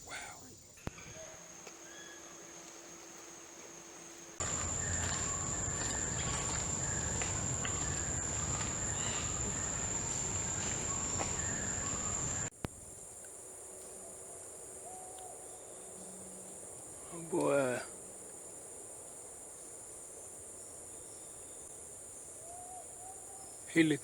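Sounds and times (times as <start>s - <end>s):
insects droning: 0.0s - 24.0s
low rumbling noise: 4.4s - 12.5s.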